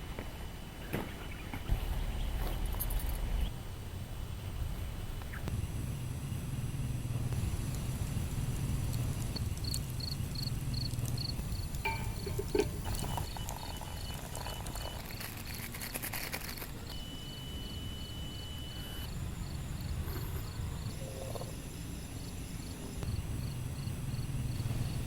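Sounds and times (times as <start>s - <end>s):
low rumble: 1.7s - 14.7s
thin high tone: 11.8s - 22.0s.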